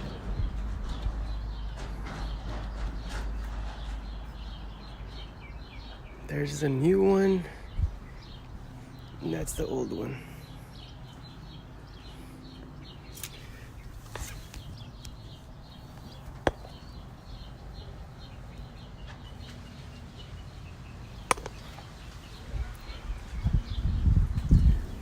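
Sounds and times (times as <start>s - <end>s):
small birds chirping: 0.0s - 25.0s
sharp clicks or taps: 21.3s - 21.6s.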